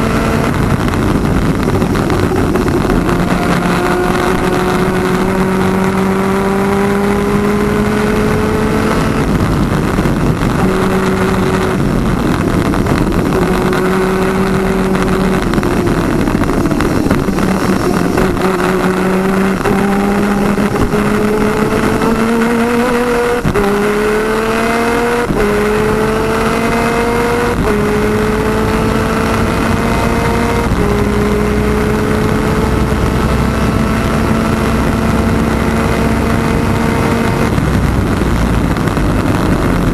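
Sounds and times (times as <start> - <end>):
two-stroke kart engine racing: 0.0 - 39.9.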